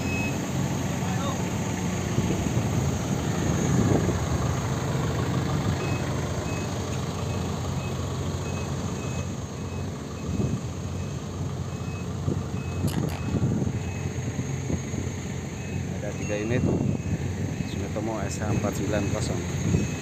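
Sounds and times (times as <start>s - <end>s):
reversing alarm beeping: 0.0s - 0.4s, 7.3s - 14.2s, 15.5s - 20.0s
heavy machinery engine rumbling: 0.0s - 20.0s
sharp click: 12.9s - 13.4s.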